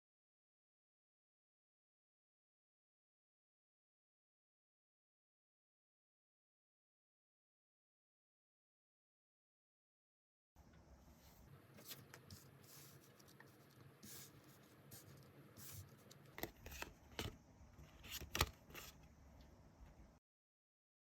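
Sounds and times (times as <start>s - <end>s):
cards rustling: 11.8s - 19.0s.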